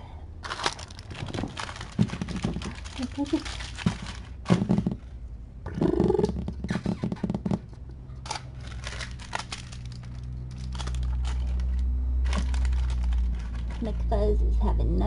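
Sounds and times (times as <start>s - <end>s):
steady low hum: 0.0s - 15.0s
crinkling handling noises: 0.4s - 5.3s, 7.0s - 14.1s.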